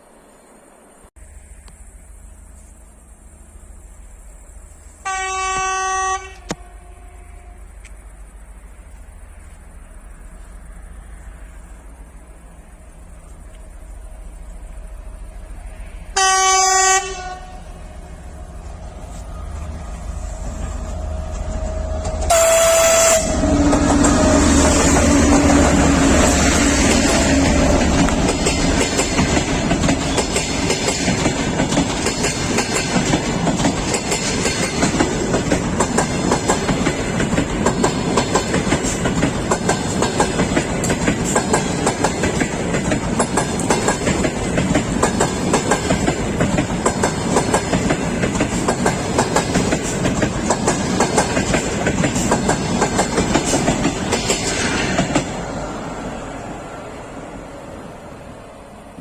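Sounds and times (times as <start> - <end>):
train rumble: 0.0 - 59.0
train wheels clicking over rail joints: 17.7 - 55.9.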